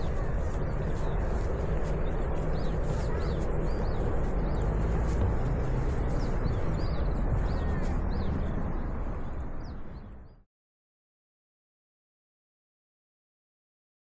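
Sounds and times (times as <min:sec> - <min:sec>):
songbird high chirps: 0:00.0 - 0:10.4
steady low rumble: 0:00.0 - 0:10.4.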